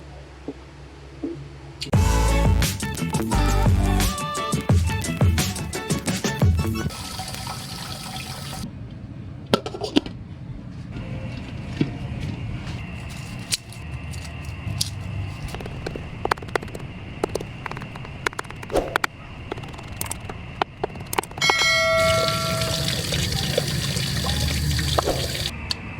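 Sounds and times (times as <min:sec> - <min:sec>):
water bubbling and sloshing: 0:15.5 - 0:25.5.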